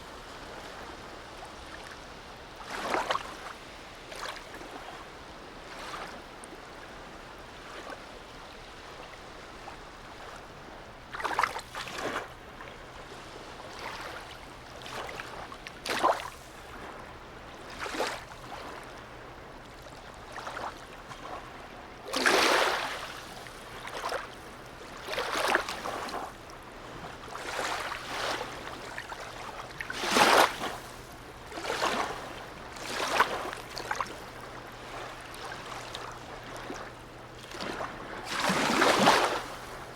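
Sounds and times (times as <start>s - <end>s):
waves slapping against quay: 10.1s - 12.4s, 13.6s - 17.0s, 20.3s - 39.9s.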